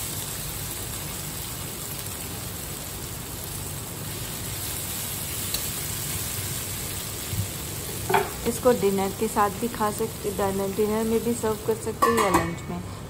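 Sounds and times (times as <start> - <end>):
vegetables sizzling in oil: 0.0 - 13.0
spatula stirring vegetables: 4.3 - 12.3.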